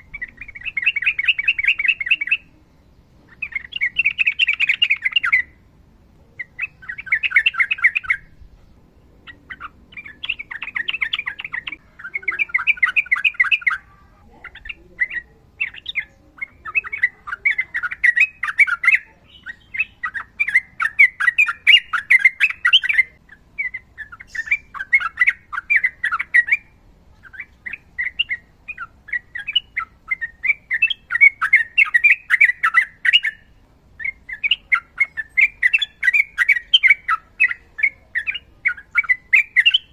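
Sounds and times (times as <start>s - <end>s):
bird singing chattering notes: 0.0s - 39.9s.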